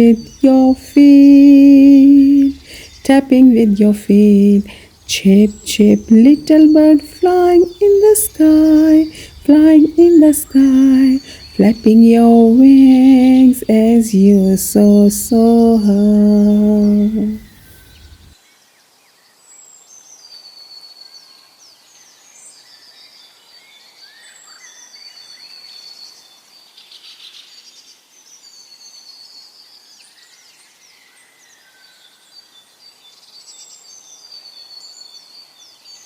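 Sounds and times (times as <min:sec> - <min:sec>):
small birds chirping: 0:00.0 - 0:18.4
faint hiss: 0:00.0 - 0:36.0.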